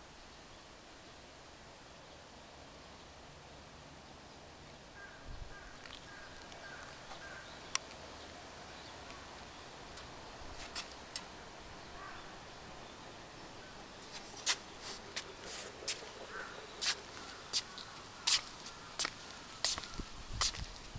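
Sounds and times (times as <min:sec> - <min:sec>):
distant bird calling: 0:04.2 - 0:20.1
sharp clicks: 0:05.9 - 0:08.0.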